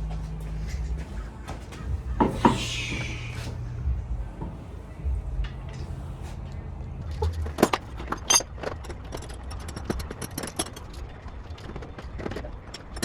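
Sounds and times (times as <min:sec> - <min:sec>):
steady low hum: 0:00.0 - 0:13.0
sharp clicks and knocks: 0:07.0 - 0:13.0.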